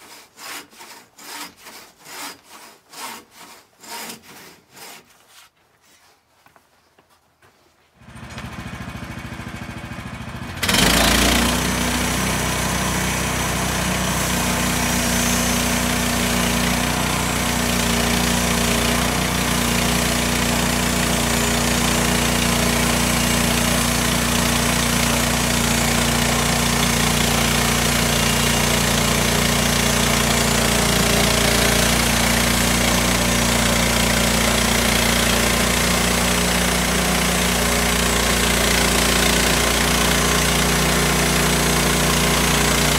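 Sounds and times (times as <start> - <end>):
small petrol engine starting: 8.0 - 16.0.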